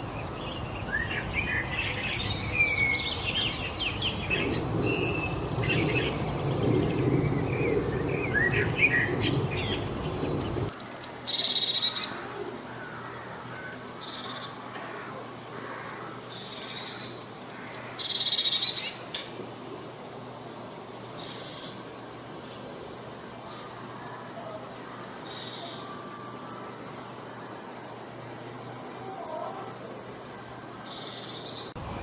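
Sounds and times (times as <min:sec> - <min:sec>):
low background rumble: 0:00.0 - 0:10.7
songbirds singing: 0:00.0 - 0:32.0.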